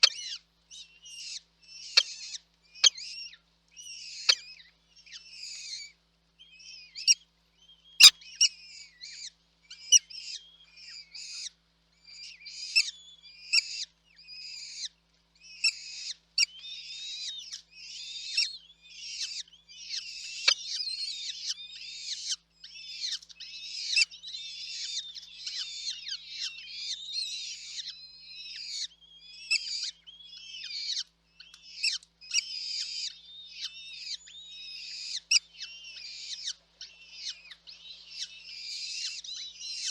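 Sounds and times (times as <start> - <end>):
chicks cheeping: 15.5 - 39.9.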